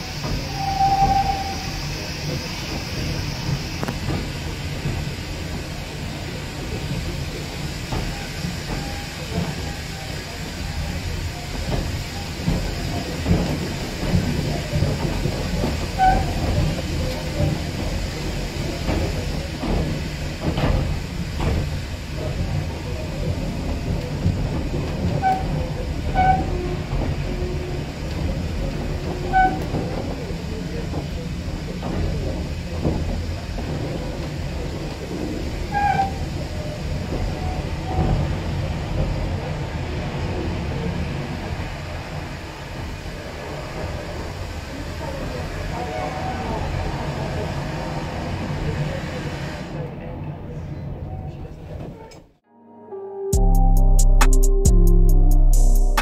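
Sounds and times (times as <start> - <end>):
train wheels rumbling on track: 0.0 - 52.4.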